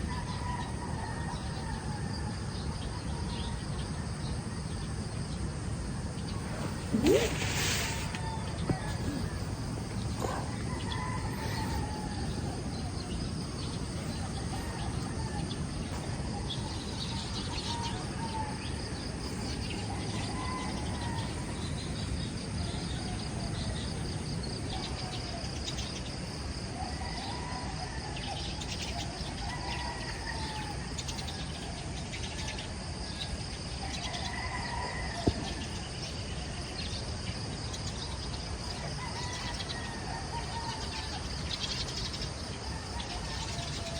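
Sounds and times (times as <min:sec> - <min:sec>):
insects trilling: 0:00.0 - 0:43.9
birds calling: 0:06.0 - 0:22.1.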